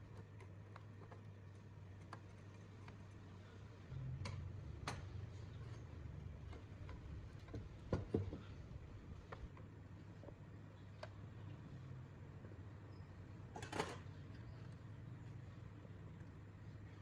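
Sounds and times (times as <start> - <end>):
low hum: 3.4 - 7.8.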